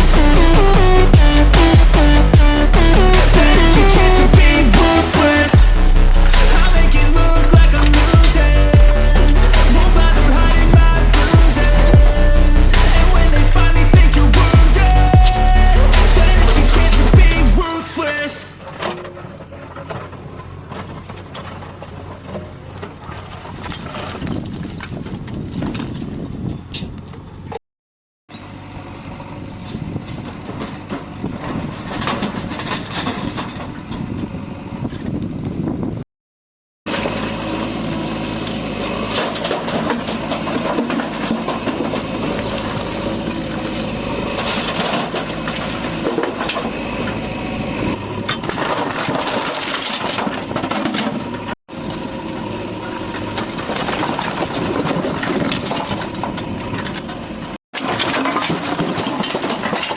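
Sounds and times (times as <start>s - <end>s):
diesel engine running: 0.0s - 23.6s, 36.9s - 57.6s.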